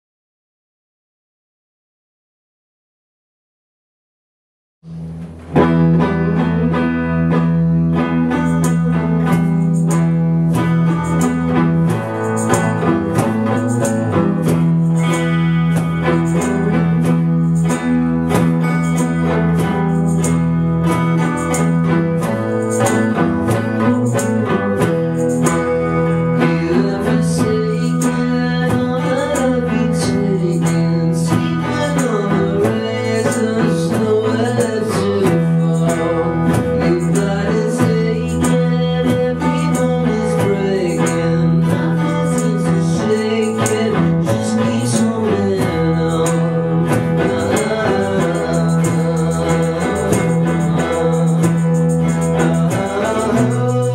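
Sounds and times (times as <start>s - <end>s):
strummed guitar: 4.8s - 53.9s
steady drum beat: 8.3s - 53.9s
man singing: 21.2s - 53.9s.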